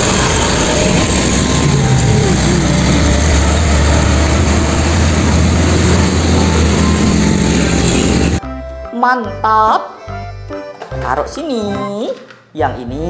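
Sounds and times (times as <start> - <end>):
truck engine running: 0.0 - 8.4.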